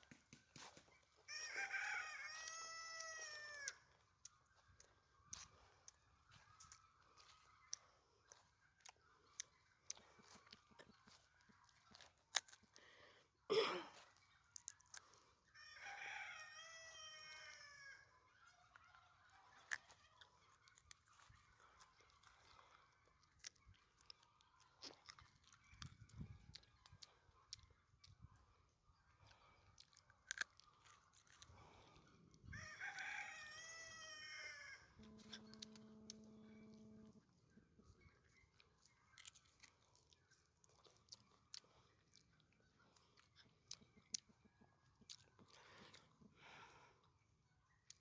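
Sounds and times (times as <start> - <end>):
rooster crowing: 1.3 - 3.8, 15.6 - 18.1, 32.5 - 36.7
steady low tone: 34.9 - 37.3.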